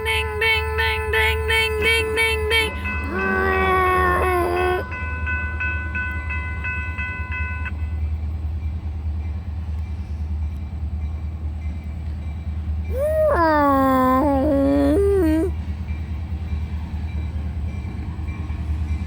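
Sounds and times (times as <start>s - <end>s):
train low rumble: 0.0s - 19.0s
railroad bell dinging: 2.2s - 12.9s, 15.8s - 19.0s.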